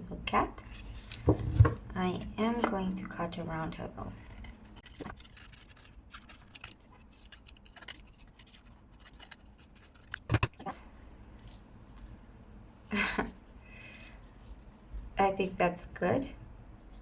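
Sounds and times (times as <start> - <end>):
scissors snipping paper: 4.1 - 10.7.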